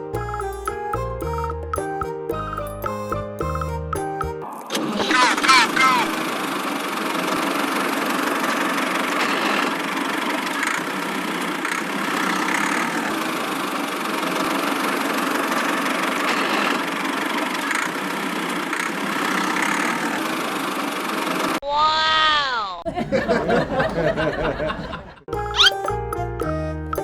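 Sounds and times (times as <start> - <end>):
small engine running: 5.0 - 21.6.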